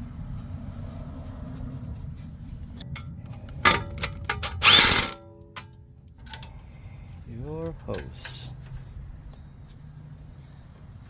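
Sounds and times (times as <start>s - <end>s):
steady low rumble: 0.0s - 11.0s
power tool bursts: 4.4s - 5.2s.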